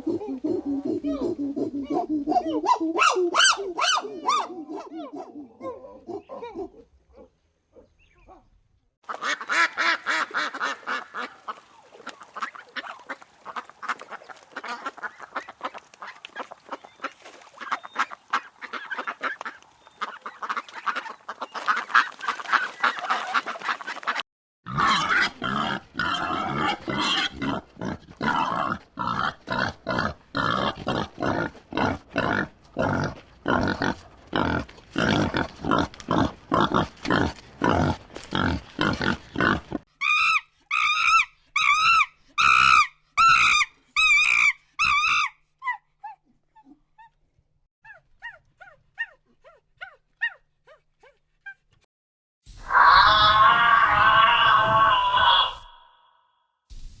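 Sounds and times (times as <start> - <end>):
waterfowl flock calling: 9.1 - 24.2
pigs calling: 9.1 - 45.2.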